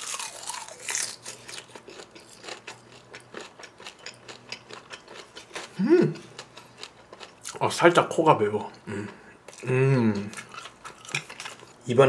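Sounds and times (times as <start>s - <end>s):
person humming: 5.8s - 6.3s, 8.9s - 10.3s.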